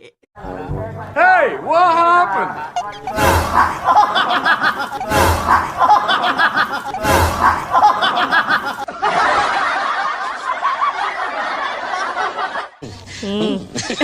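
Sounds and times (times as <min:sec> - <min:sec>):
hazy laugh: 0:03.6 - 0:14.0.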